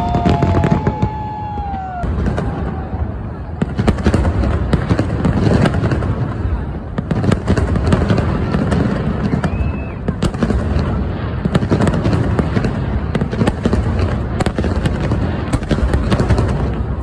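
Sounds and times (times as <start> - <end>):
firework whistle: 0.0 - 4.2, 8.7 - 10.9
fireworks booming: 0.0 - 17.0
fireworks crackling and popping: 0.0 - 17.0.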